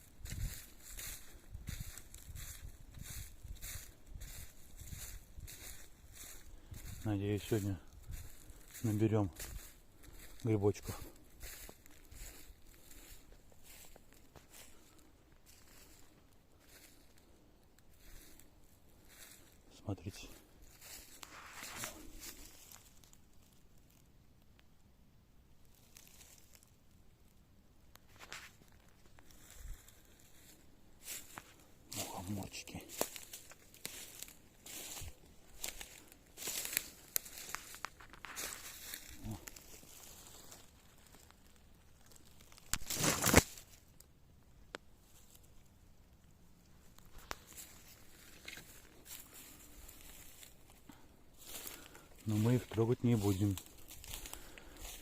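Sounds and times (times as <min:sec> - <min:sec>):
rustling leaf litter underfoot: 0:00.0 - 0:24.0, 0:25.6 - 0:26.8, 0:28.0 - 0:44.0, 0:45.0 - 0:55.0
twig snaps: 0:42.0 - 0:44.0, 0:46.9 - 0:48.8.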